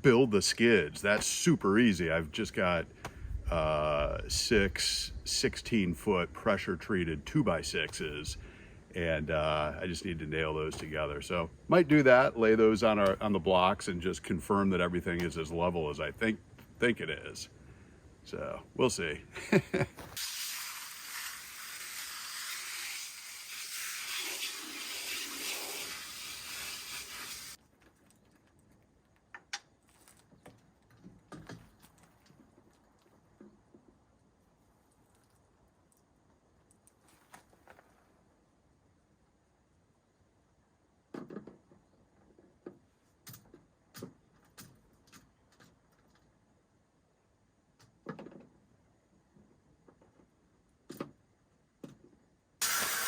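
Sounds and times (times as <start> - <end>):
water spraying from garden hose: 20.2 - 27.6, 52.6 - 53.0.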